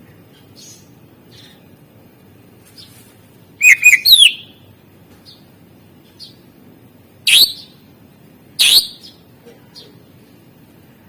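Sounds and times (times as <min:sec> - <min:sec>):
bird singing loud notes: 0:03.6 - 0:04.7, 0:07.3 - 0:07.8, 0:08.6 - 0:09.2
soft bird chirps: 0:03.6 - 0:05.5.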